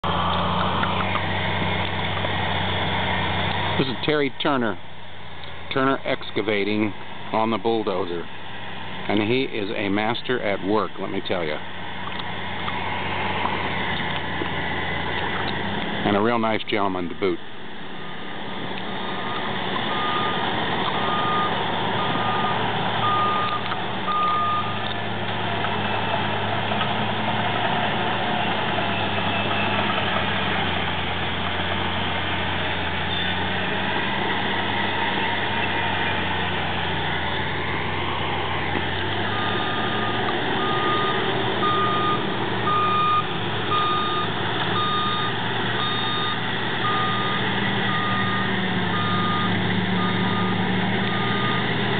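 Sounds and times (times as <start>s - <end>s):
bulldozer diesel engine under load: 0.0s - 51.9s
reversing alarm beeps: 19.0s - 20.4s, 21.0s - 24.8s, 39.3s - 51.6s.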